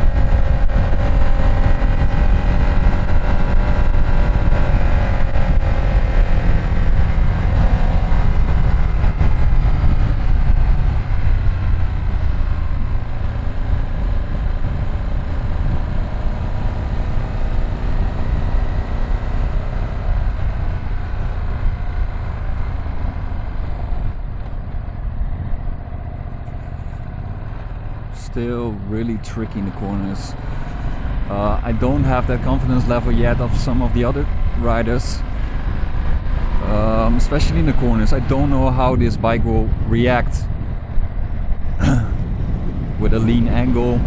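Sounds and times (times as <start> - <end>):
motorcycle engine running: 0.0 - 28.2
wind rumble on microphone: 0.0 - 44.0.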